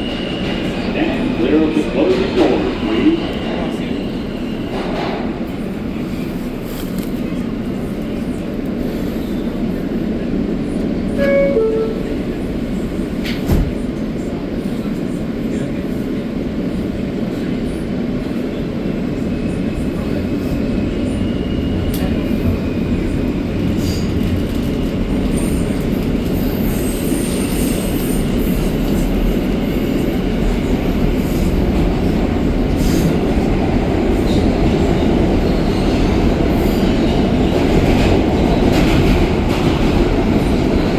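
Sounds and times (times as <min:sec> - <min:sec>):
subway train rumble: 0:00.0 - 0:40.9
two-tone door chime: 0:11.2 - 0:12.2.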